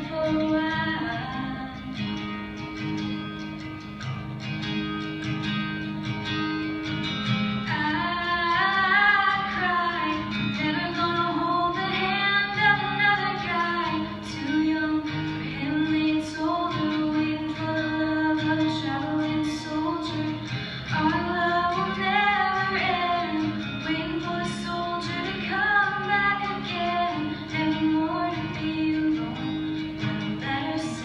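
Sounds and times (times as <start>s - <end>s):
girl singing a slow ballad: 0.0s - 2.3s, 7.6s - 31.0s
strummed guitar chords: 0.0s - 31.0s.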